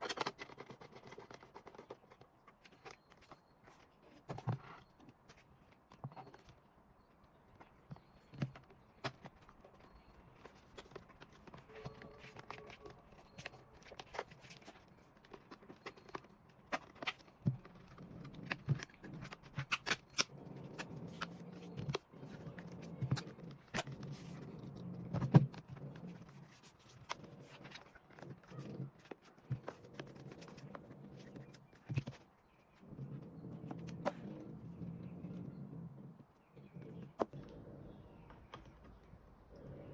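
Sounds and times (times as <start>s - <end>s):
hands handling plastic case: 7.6s - 32.8s.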